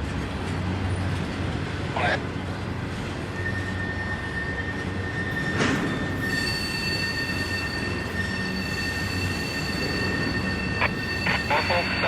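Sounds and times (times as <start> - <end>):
rumble of train cars: 0.0 - 12.0
train wheels squealing: 3.2 - 12.0.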